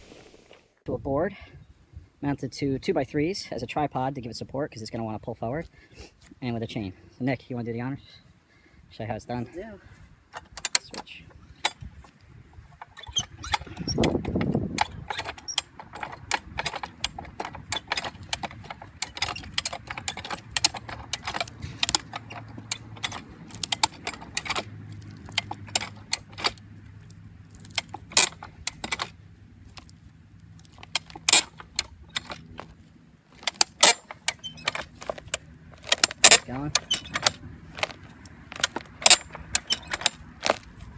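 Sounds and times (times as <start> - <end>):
metal jack clicking and clanking: 10.3 - 11.9, 12.7 - 40.9.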